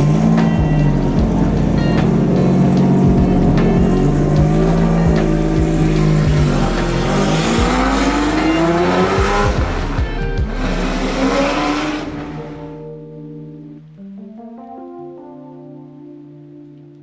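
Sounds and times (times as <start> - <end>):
car engine revving: 0.0 - 12.9
background music: 0.0 - 17.0.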